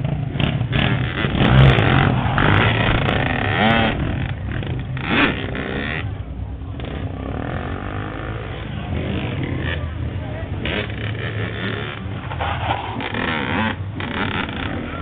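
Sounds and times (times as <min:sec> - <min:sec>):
crowd voices: 0:00.0 - 0:15.0
dirt bike and quad engines: 0:00.0 - 0:15.0.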